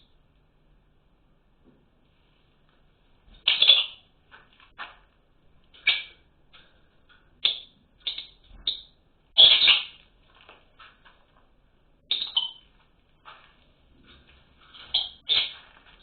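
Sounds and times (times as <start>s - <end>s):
small birds chirping harshly: 3.4s - 4.0s, 7.4s - 10.0s, 12.0s - 12.7s, 14.7s - 16.0s.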